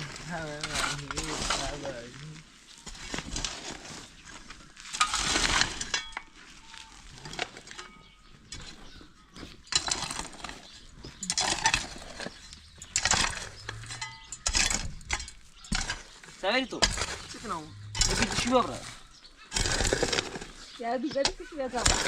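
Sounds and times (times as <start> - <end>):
metal scraping strokes: 11.4 - 22.0
metal clinks: 12.6 - 16.0.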